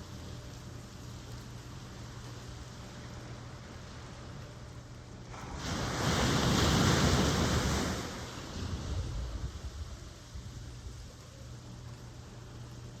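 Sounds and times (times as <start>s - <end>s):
low rumble of surf: 0.0s - 13.0s
ocean wave breaking: 5.3s - 9.7s.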